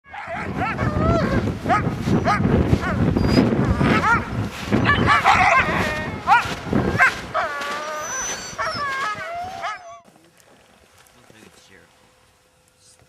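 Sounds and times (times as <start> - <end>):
dogs barking and yipping: 0.1 - 10.1
dogs whining: 0.1 - 10.1.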